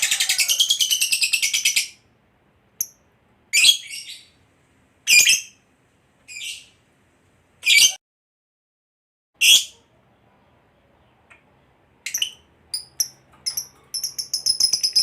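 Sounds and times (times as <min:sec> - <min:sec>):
lovebird high chatter: 0:00.0 - 0:01.9
lovebird shrill chirps: 0:12.0 - 0:15.0.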